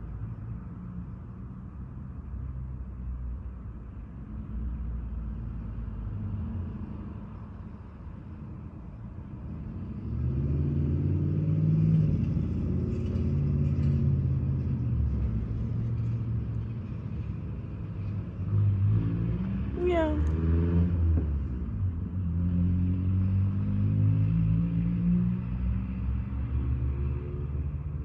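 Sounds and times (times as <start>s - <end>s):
vehicle engine rumbling: 7.1s - 22.4s.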